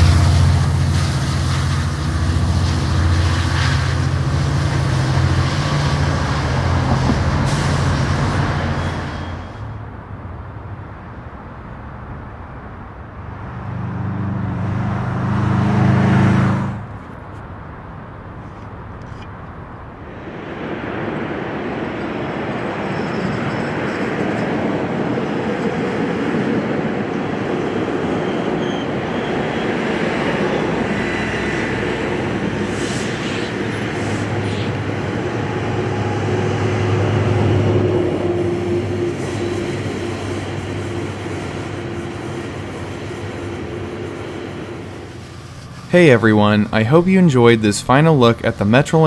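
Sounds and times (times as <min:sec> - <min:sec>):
train wheels rolling over rails: 0:00.0 - 0:09.9, 0:22.6 - 0:47.3
diesel locomotive engine running: 0:00.0 - 0:49.0.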